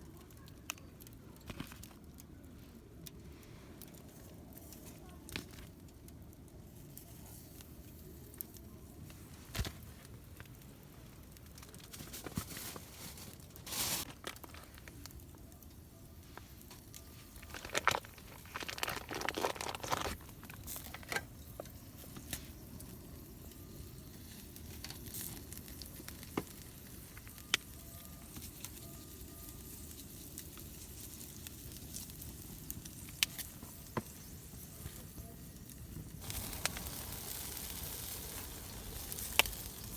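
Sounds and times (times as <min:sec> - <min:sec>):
crinkling and rustling: 0:00.1 - 0:22.8.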